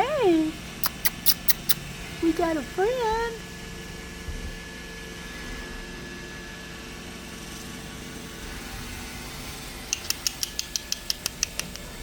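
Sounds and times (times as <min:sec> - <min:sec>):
mechanical hum with high tone: 0:00.0 - 0:12.0
rapid sharp clicks: 0:09.9 - 0:12.0.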